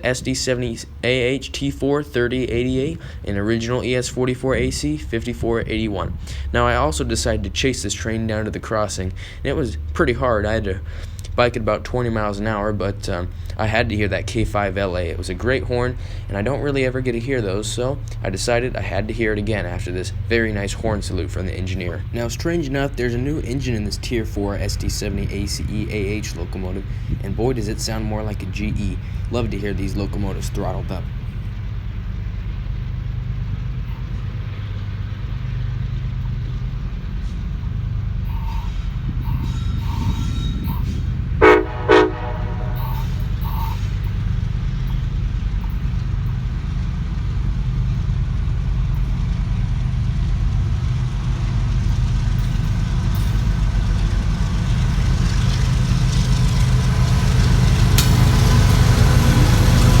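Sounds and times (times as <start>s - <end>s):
diesel locomotive rumbling: 0.0s - 60.0s
locomotive horn blasts: 38.2s - 44.2s.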